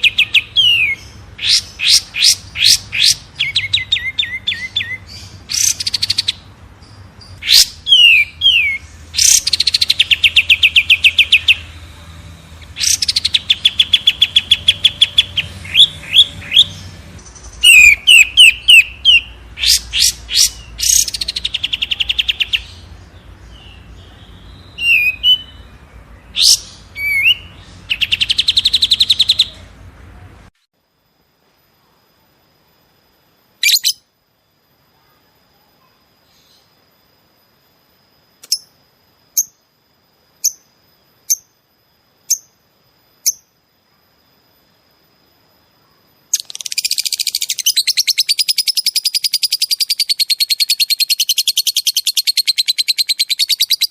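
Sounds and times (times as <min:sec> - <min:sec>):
songbirds whistling and trilling: 0:00.0 - 0:11.8, 0:12.6 - 0:29.8, 0:33.6 - 0:34.0, 0:46.3 - 0:53.9.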